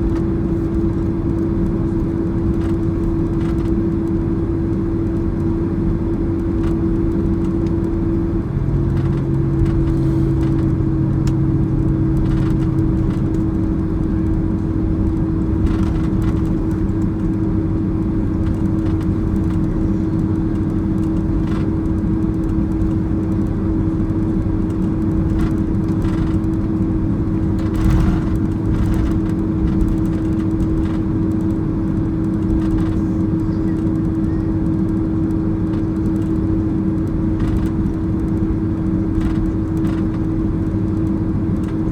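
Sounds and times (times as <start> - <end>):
aircraft engines idling hum: 0.0 - 41.9
low rumble: 8.5 - 20.6, 25.2 - 31.2.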